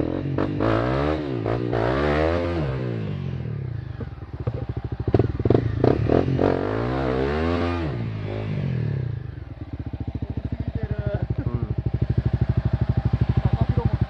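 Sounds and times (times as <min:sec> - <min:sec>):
motorcycle engine revving: 0:00.0 - 0:14.0
engine knocking: 0:09.6 - 0:14.0.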